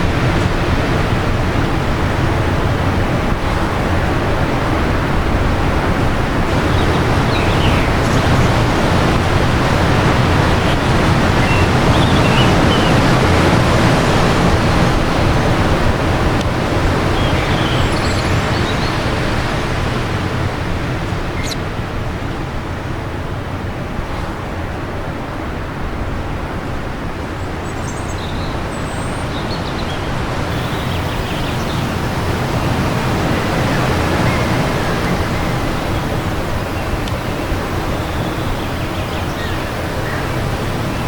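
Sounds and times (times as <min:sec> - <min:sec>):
strong wind gusts: 0:00.0 - 0:27.7, 0:28.7 - 0:41.0
faint birdsong chirps: 0:06.5 - 0:09.1, 0:09.9 - 0:13.3, 0:17.1 - 0:19.2, 0:27.6 - 0:41.0.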